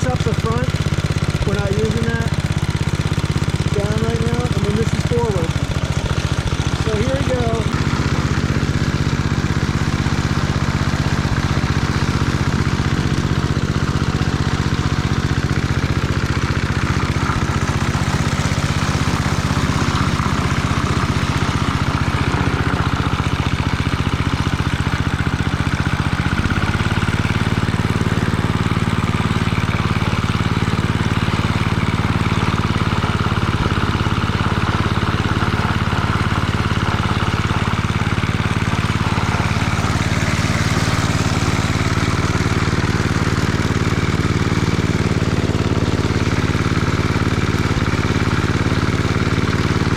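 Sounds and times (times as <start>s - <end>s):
lawn mower engine running: 0.0s - 49.9s.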